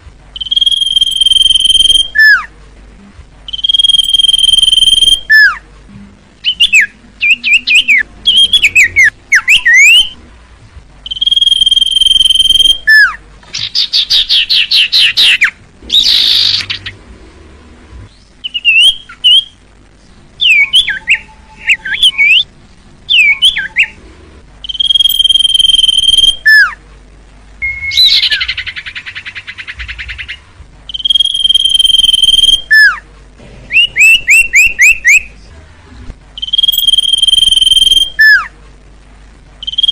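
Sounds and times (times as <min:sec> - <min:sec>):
bird whistles and trills: 0:00.4 - 0:02.5, 0:03.5 - 0:05.6, 0:06.4 - 0:10.2, 0:11.1 - 0:16.9, 0:18.4 - 0:19.6, 0:20.4 - 0:22.5, 0:24.6 - 0:26.8, 0:27.6 - 0:33.0, 0:33.7 - 0:35.3, 0:36.4 - 0:38.5, 0:39.6 - 0:39.9.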